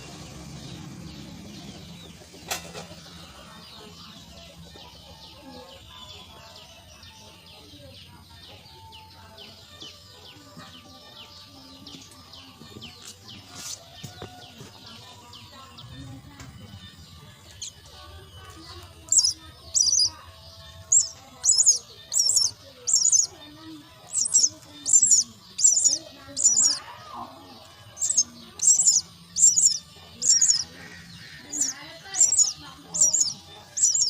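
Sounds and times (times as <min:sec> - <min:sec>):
chicks chirping: 0:17.5 - 0:34.0.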